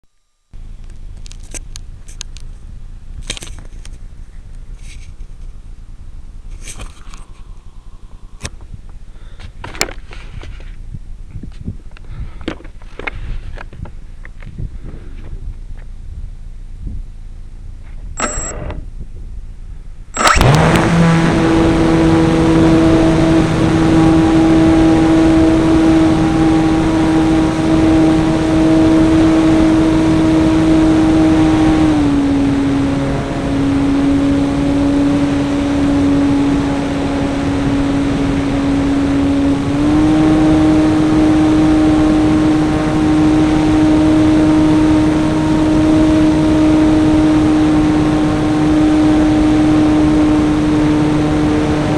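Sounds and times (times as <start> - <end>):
model airplane engine running: 20.2 - 51.9.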